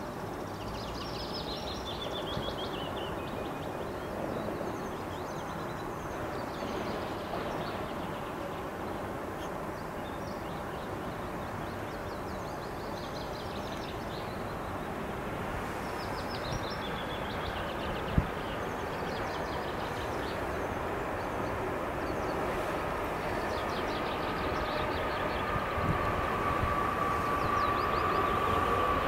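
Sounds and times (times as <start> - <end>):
freight train rumble: 0.0 - 29.0
birds singing: 0.2 - 14.9, 15.7 - 29.0
locomotive high whine: 16.8 - 29.0.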